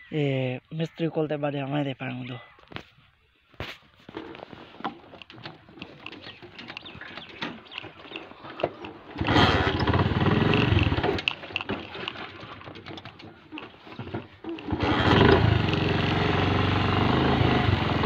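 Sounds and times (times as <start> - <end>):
clicks and knocks of work: 4.1 - 14.8
motorcycle engine firing up: 9.1 - 13.3, 14.1 - 18.0.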